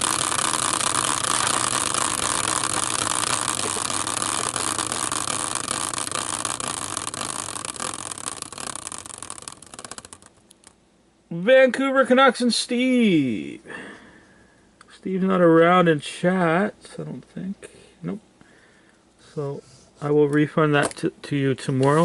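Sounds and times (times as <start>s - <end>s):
prize wheel clicking: 0.0s - 10.7s.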